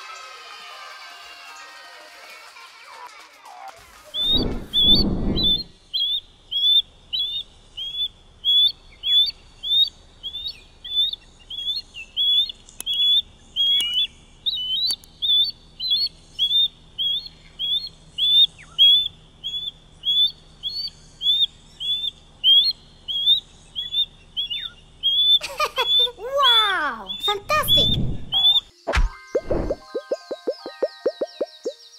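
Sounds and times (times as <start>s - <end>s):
osprey calling: 4.1s - 28.7s, 29.4s - 31.8s.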